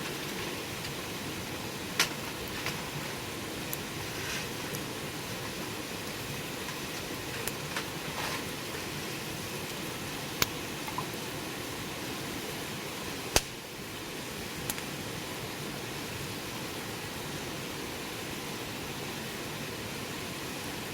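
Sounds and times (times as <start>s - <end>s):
wood fire crackling and popping: 0.0s - 11.9s, 13.2s - 15.0s.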